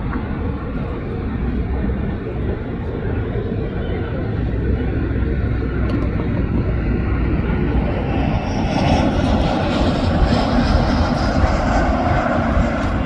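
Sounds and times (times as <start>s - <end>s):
jet airliner engines running: 0.0s - 13.0s.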